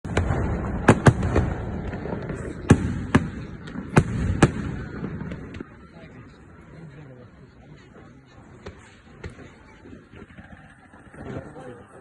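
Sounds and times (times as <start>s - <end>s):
fireworks cracks: 0.0s - 6.4s.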